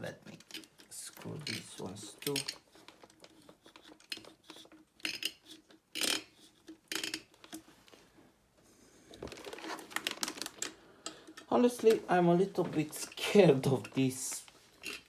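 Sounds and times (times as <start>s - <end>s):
screwdriver rasping: 0.4s - 7.6s, 14.8s - 15.0s
screwdriver scraping and clicking: 0.4s - 7.7s, 13.0s - 15.0s.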